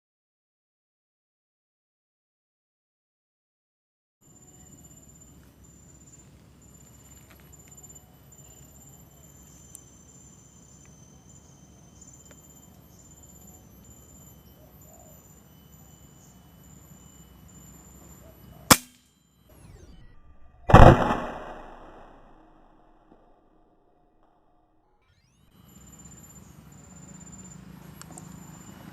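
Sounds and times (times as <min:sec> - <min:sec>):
insect chirping in pulses: 0:04.2 - 0:22.6, 0:25.1 - 0:28.9
air rifle shots: 0:18.7 - 0:19.0, 0:20.7 - 0:22.6.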